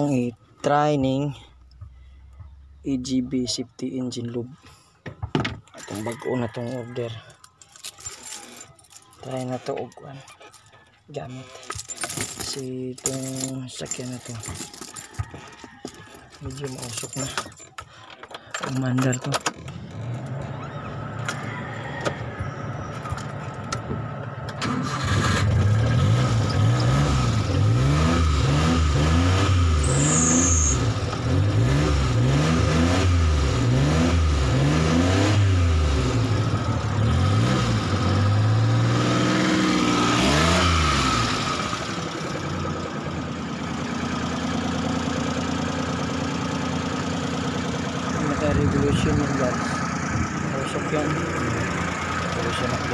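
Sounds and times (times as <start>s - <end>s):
small engine starting and revving: 24.5s - 42.5s
engine idling: 41.7s - 52.9s.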